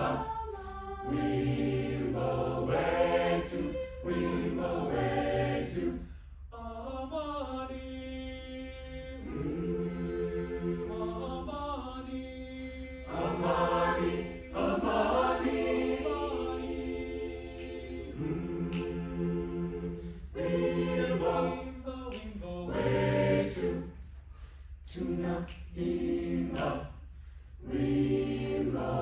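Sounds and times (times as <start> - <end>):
choir singing a cappella: 0.0 - 29.0
singers breathing: 19.8 - 20.4, 24.0 - 24.9, 27.0 - 27.6.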